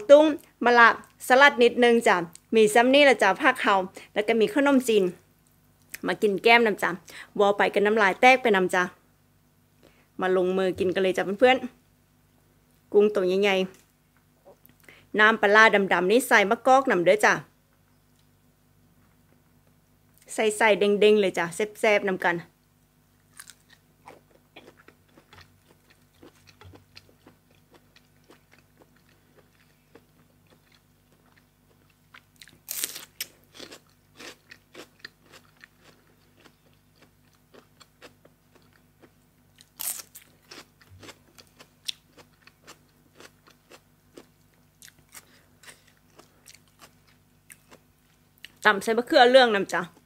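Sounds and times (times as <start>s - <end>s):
person chewing crisp food: 23.2s - 48.6s.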